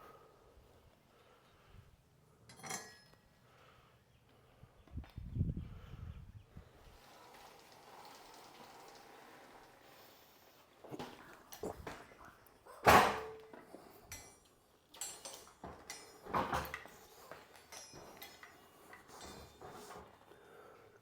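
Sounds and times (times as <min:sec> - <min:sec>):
parts and tools clunking: 0:02.4 - 0:03.3, 0:12.8 - 0:20.4.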